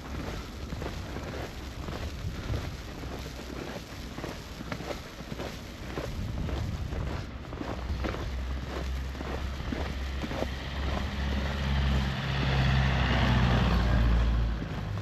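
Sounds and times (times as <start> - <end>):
footsteps crunching in snow: 0.0 - 15.0
wind rumble on microphone: 0.0 - 15.0
vehicle passing close by: 8.4 - 15.0.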